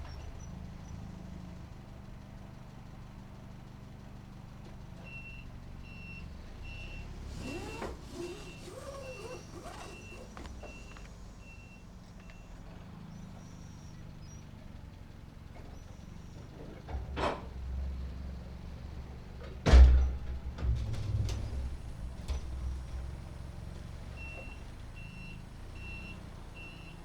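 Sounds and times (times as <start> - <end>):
diesel engine hum: 0.0 - 27.0
reversing alarm beeping: 5.1 - 12.6, 24.1 - 27.0
short squeaks: 6.2 - 12.5, 20.6 - 27.0.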